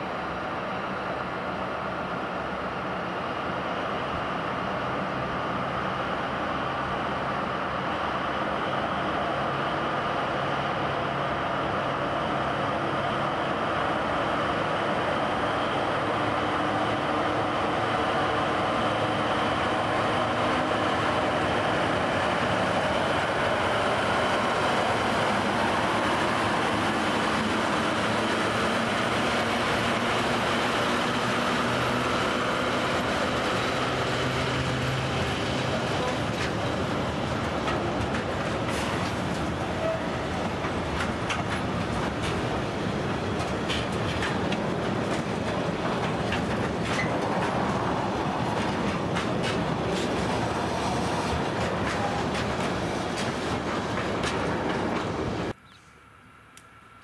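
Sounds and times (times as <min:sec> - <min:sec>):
diesel locomotive engines: 0:00.0 - 0:57.0
rumble of wagons rolling: 0:10.4 - 0:55.6.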